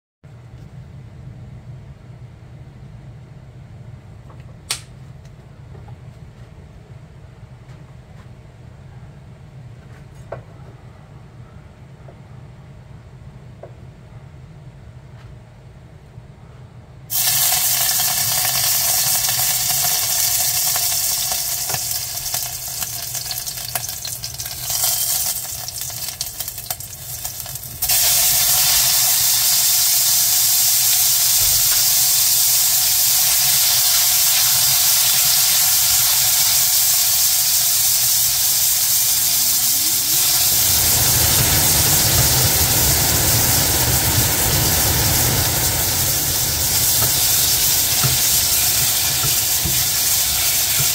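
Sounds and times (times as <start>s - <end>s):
food sizzling in hot oil: 17.1s - 50.9s.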